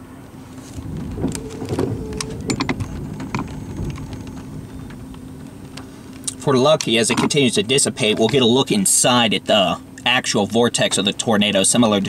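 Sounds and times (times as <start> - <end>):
vehicle humming: 0.0 - 7.9
wind buffeting microphone: 0.3 - 6.2.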